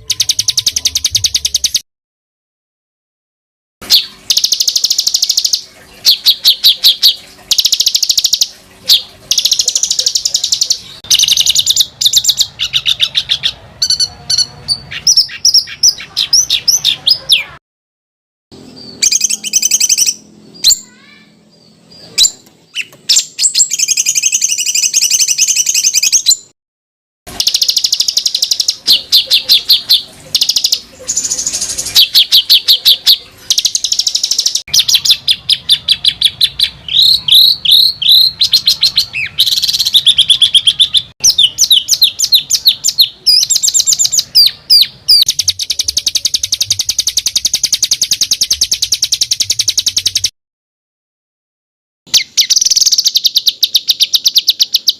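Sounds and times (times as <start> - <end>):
songbird trilling and chattering: 0.0 - 1.8, 3.8 - 17.6, 18.6 - 26.5, 27.3 - 50.3, 52.1 - 54.9.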